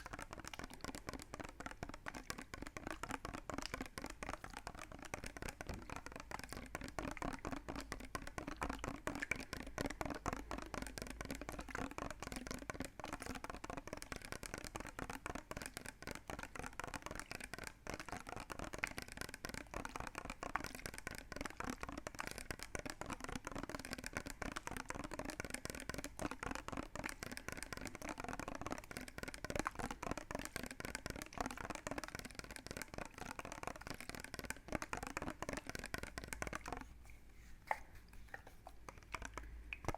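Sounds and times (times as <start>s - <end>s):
rapid wet clicking: 0.0s - 39.9s.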